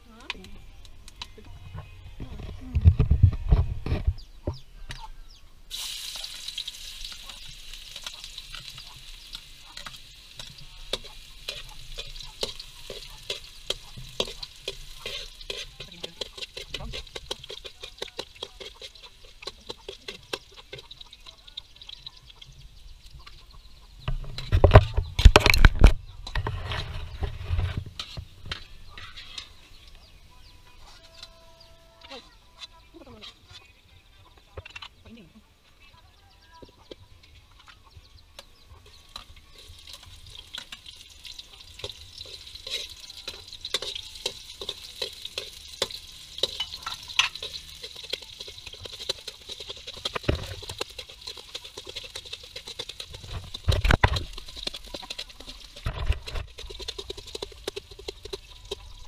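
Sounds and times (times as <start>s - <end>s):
metal spatula scraping wok: 5.7s - 22.6s, 24.0s - 33.7s, 38.4s - 59.0s
food frying in hot oil: 5.7s - 25.7s, 38.5s - 59.0s.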